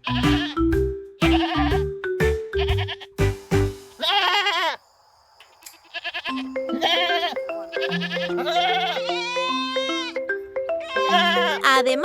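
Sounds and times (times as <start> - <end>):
goats bleating: 0.0 - 0.6, 1.2 - 1.8, 2.6 - 3.1, 4.0 - 4.8, 5.8 - 10.2, 10.8 - 11.6
soft instrumental music: 0.0 - 4.0, 6.3 - 12.0.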